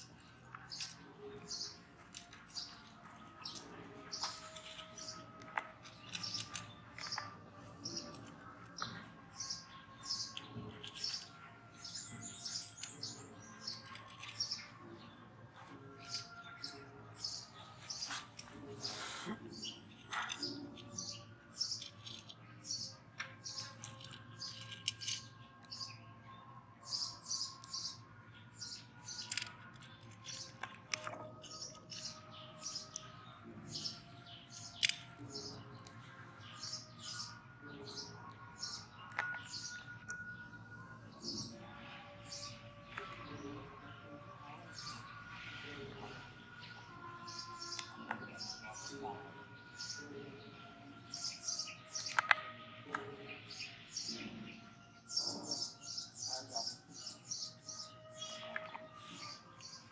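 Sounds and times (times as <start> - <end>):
small birds chirping: 0.0 - 59.9
sharp clicks: 34.5 - 35.0.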